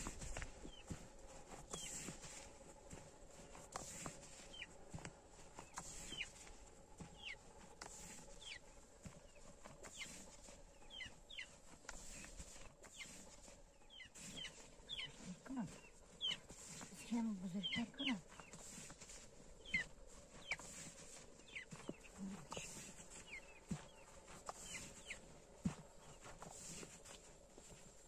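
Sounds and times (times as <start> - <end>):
bird peeping faintly: 5.6 - 27.2.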